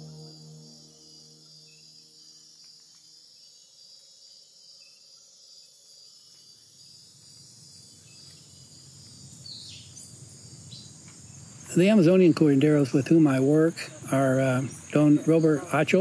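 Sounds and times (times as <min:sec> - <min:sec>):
descending bird-like chirp: 0:00.0 - 0:01.9
insects chirring: 0:00.0 - 0:16.0.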